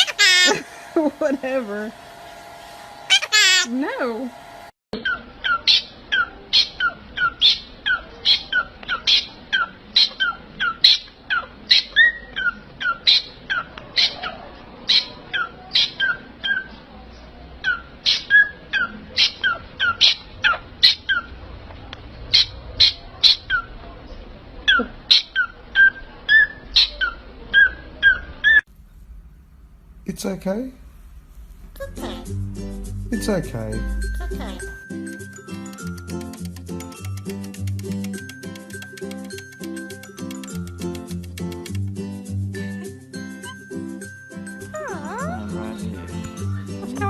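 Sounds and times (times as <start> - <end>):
parrot chirping: 0.0 - 0.7, 3.0 - 3.7, 5.0 - 14.3.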